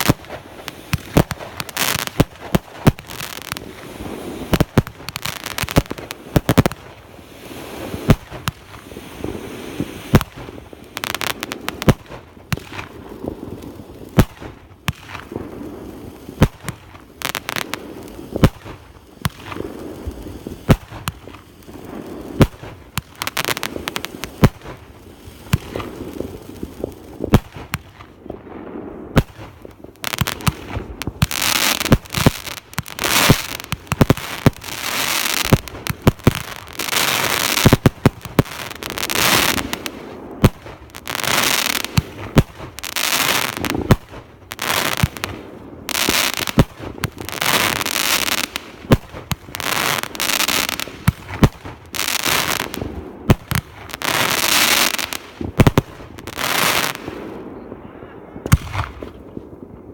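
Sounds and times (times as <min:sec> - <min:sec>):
fireworks bangs: 0:00.0 - 0:59.9
fireworks crackling bursts: 0:00.0 - 0:59.9.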